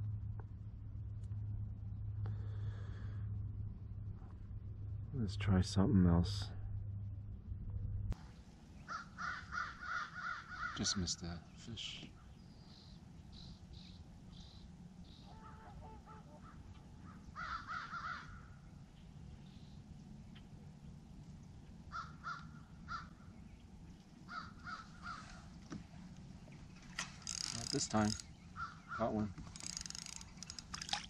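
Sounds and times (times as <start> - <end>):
low steady rumble: 0.0 - 29.6
faint bird calls: 8.7 - 30.6.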